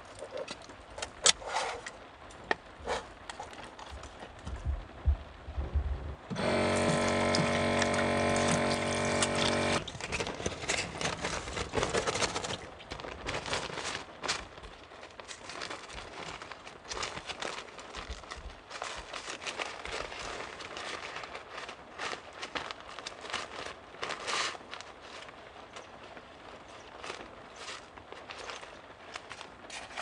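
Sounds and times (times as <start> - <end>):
electric water pump buzzing: 6.1 - 10.3
water splashing: 6.3 - 14.2
water pouring: 6.5 - 13.4.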